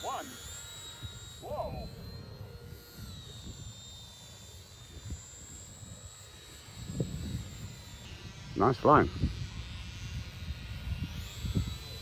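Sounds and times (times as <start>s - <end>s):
model aeroplane motor whining: 0.0s - 12.0s
wind on microphone: 4.8s - 12.0s.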